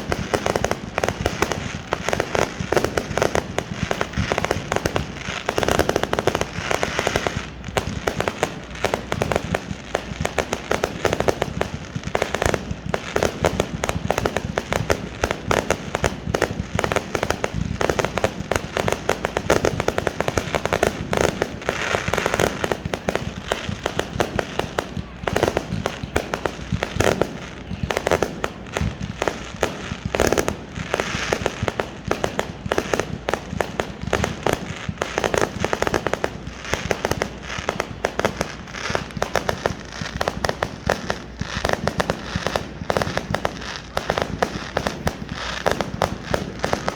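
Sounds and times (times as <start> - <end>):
fireworks bursting: 0.0 - 46.9.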